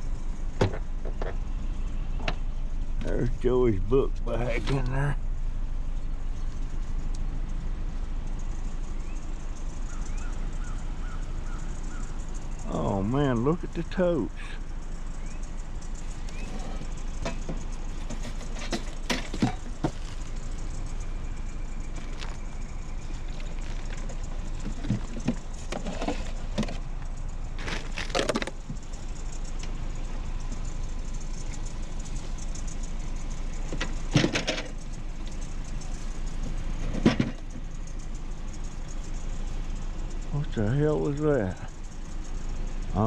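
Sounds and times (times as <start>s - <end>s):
vehicle engine idling: 0.0s - 43.0s
sharp knocks and clatters: 0.6s - 1.4s, 16.5s - 20.3s, 23.4s - 26.8s, 33.6s - 35.4s, 36.4s - 37.7s.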